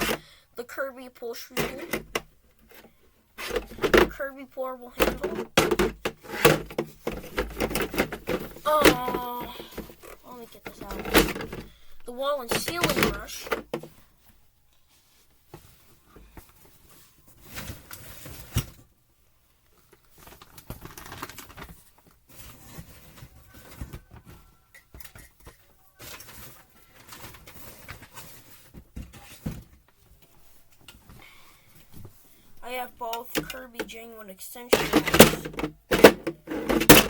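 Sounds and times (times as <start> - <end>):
vacuum cleaner attachments handled: 5.0 - 11.7, 34.7 - 37.0.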